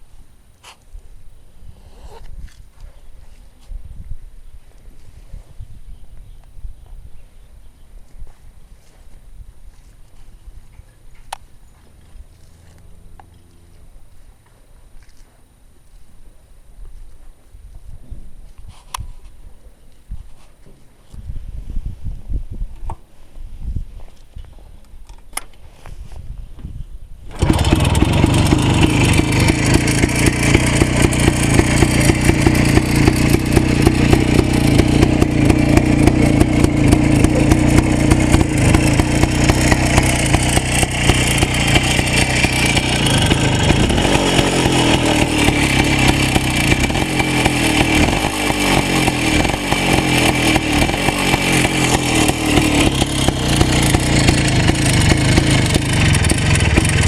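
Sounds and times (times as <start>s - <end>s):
two-stroke motorcycle engine running: 27.3s - 57.0s.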